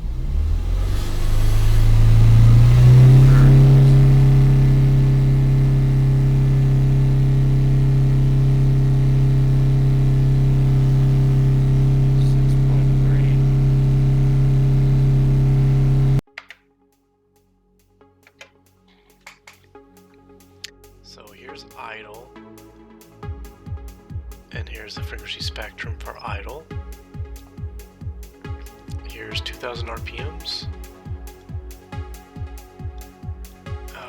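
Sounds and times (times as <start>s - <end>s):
car engine revving: 0.0s - 16.2s.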